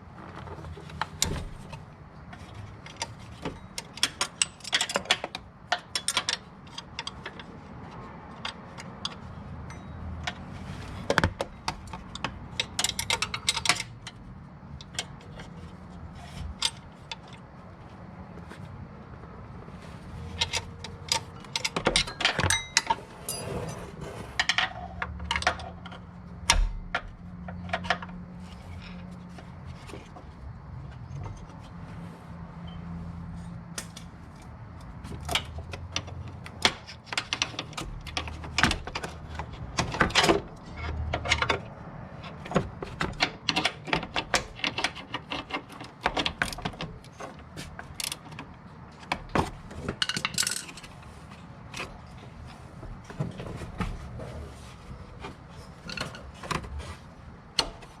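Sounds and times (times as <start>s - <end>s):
metal tools clinking: 20.3s - 25.7s, 49.8s - 51.1s.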